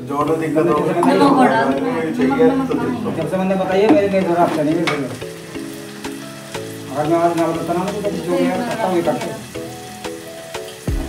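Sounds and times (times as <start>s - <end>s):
clicking beat: 0.0s - 6.2s
background song: 0.0s - 11.0s
food sizzling in a pot: 0.0s - 11.0s.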